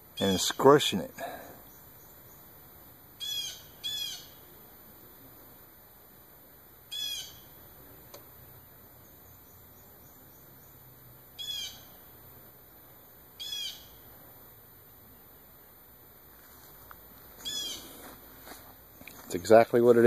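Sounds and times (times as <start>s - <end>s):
bird short calls: 3.2s - 4.4s, 6.9s - 7.5s, 11.4s - 12.0s, 13.4s - 14.0s, 17.4s - 18.0s.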